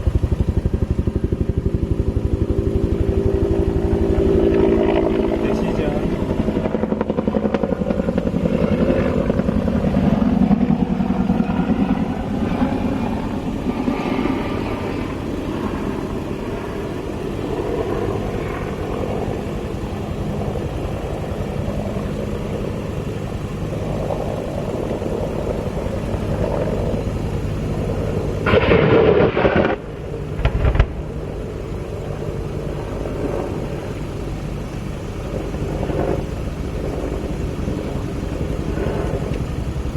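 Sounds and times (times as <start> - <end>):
helicopter rotor flying overhead: 0.0 - 39.9
loud burst: 28.4 - 31.2.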